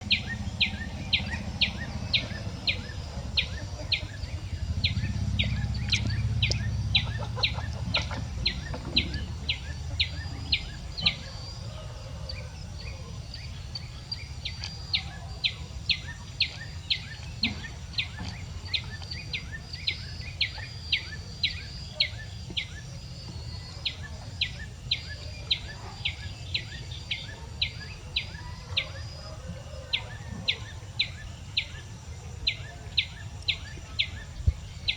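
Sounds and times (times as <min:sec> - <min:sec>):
low rumble: 0:00.0 - 0:11.0
small bird chirping: 0:00.0 - 0:11.6, 0:12.3 - 0:29.2.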